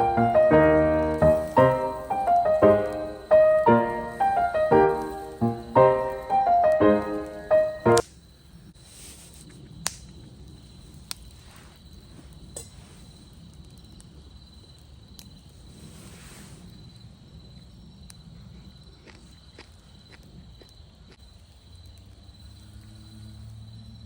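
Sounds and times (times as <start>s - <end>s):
campfire pops and crackles: 0.0s - 8.2s, 9.4s - 15.8s
high-pitched insect trill: 0.0s - 8.8s, 16.7s - 24.0s.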